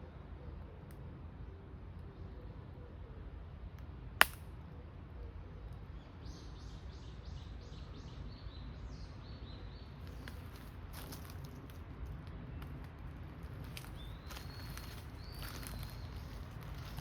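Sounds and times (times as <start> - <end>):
steady low rumble: 0.0 - 17.0
sharp click: 4.2 - 4.5.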